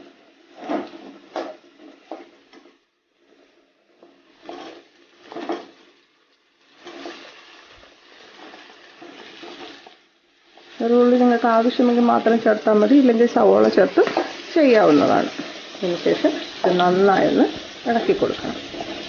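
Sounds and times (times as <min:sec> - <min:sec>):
shallots sizzling in hot oil: 0:00.0 - 0:19.0
spoon scraping a pan: 0:04.2 - 0:05.9, 0:06.7 - 0:10.8, 0:13.6 - 0:19.0.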